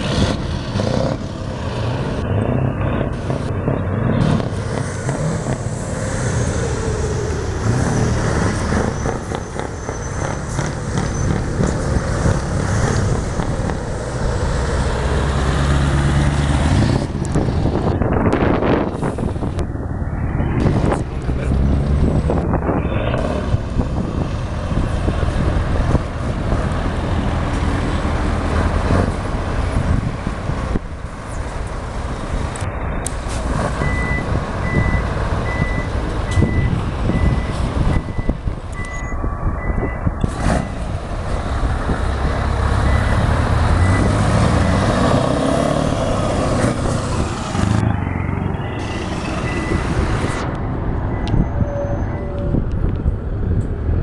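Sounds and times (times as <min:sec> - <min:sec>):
truck engines running: 0:00.0 - 0:54.0
reversing alarm beeping: 0:33.8 - 0:40.8, 0:42.8 - 0:44.9, 0:48.0 - 0:50.0, 0:51.1 - 0:52.6.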